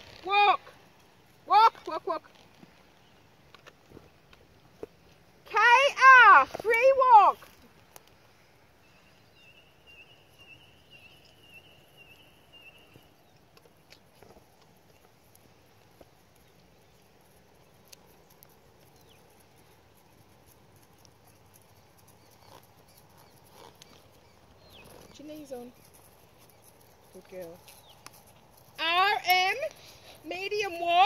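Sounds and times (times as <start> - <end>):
bird calling: 22.1 - 31.0.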